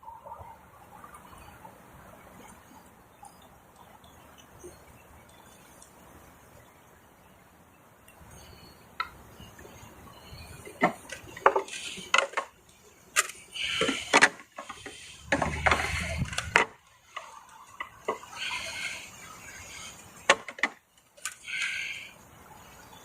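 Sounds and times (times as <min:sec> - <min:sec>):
hard parts clicking and rattling: 0:13.1 - 0:17.3.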